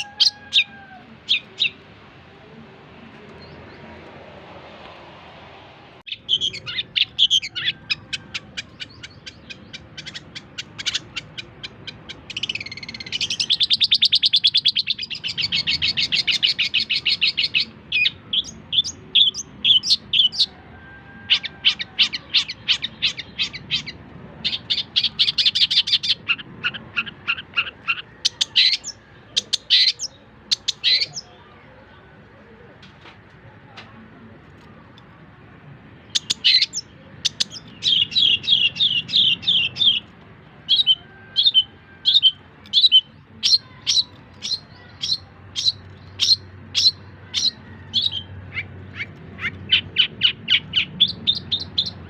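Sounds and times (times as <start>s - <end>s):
shrike singing sharp notes and trills: 6.0s - 31.4s, 35.8s - 52.0s.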